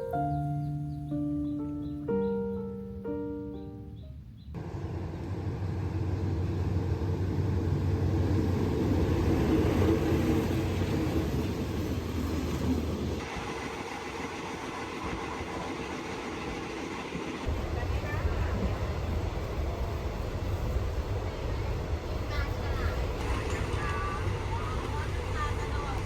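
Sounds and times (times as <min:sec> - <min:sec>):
music: 0:00.0 - 0:04.5
train rumble with rattle: 0:04.6 - 0:26.0.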